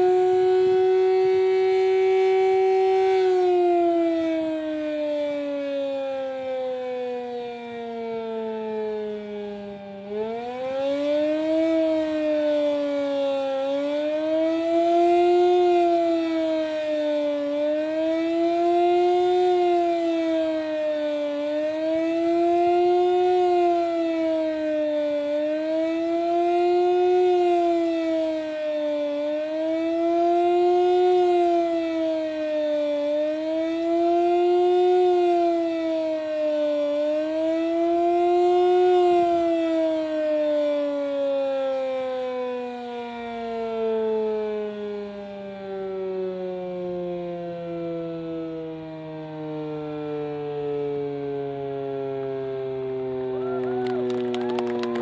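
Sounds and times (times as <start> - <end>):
warning siren wailing: 0.0 - 39.6, 53.0 - 55.0.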